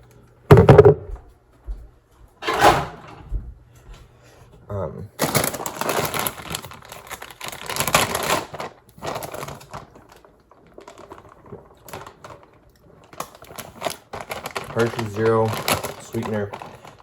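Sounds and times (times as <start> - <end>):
packaging crackling and rustling: 5.2 - 17.0.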